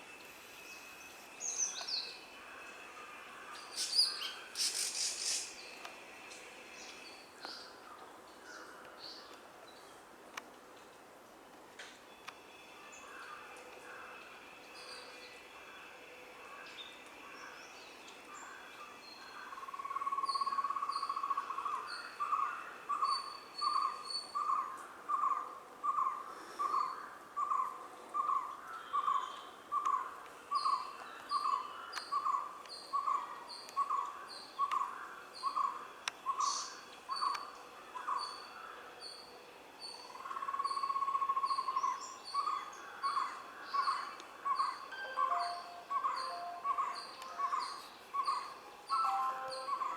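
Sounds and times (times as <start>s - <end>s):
birds chirping: 40.8s - 49.9s
bird hooting: 44.5s - 49.9s.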